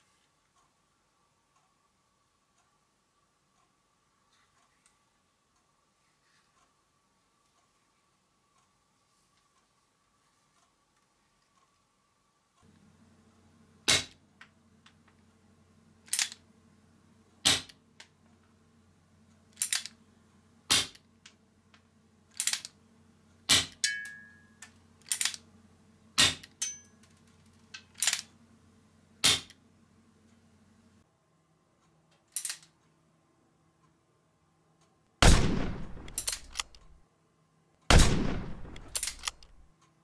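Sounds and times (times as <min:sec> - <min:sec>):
airsoft revolver shots: 0:35.2 - 0:37.0, 0:37.9 - 0:39.6.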